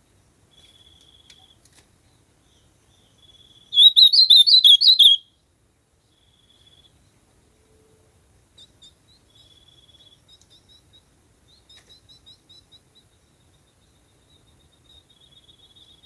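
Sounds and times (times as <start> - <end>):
songbird chirps and trills: 2.5 - 5.2.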